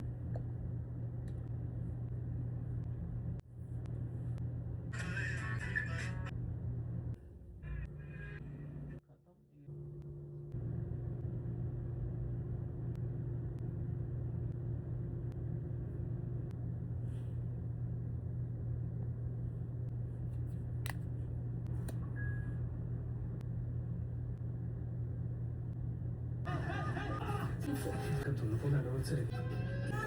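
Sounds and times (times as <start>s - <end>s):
low background rumble: 0.0s - 9.0s, 10.0s - 27.7s
constant hum: 0.0s - 30.0s.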